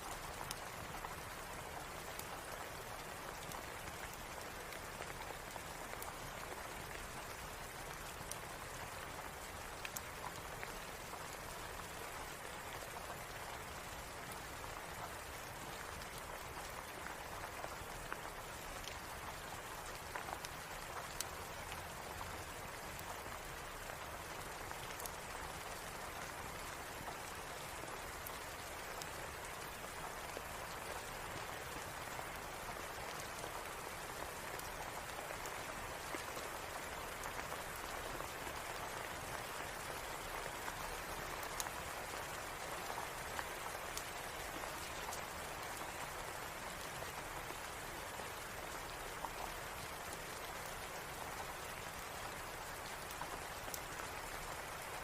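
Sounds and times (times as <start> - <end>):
wood fire crackling: 0.0 - 40.7
steady rain falling: 0.0 - 55.0.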